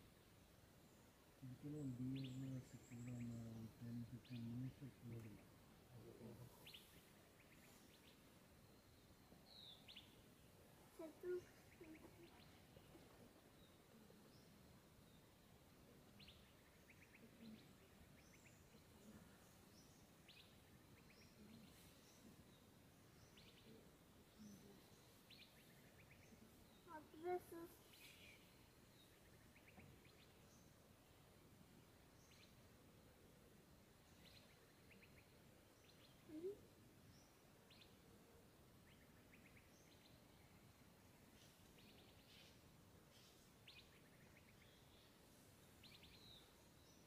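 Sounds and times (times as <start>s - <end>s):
small bird chirping: 0.8s - 15.3s, 16.1s - 30.8s, 38.8s - 47.0s.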